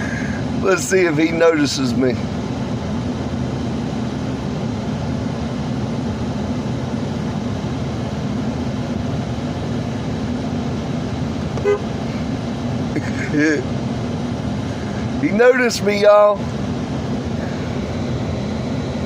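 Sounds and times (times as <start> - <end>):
car engine idling: 0.0 - 19.0
car horn toot: 11.6 - 12.0.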